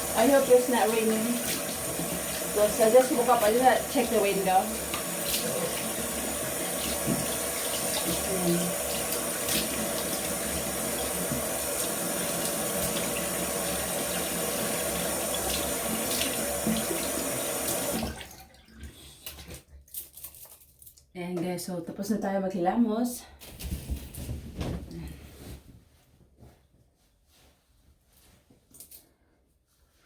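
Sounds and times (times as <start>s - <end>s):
tap running into sink: 0.0s - 18.3s.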